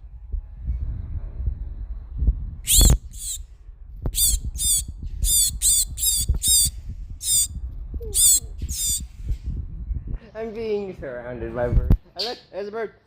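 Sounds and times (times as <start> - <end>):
low rumble: 0.0 - 12.0
bird squawking: 2.7 - 3.4, 4.2 - 7.5, 8.2 - 9.0.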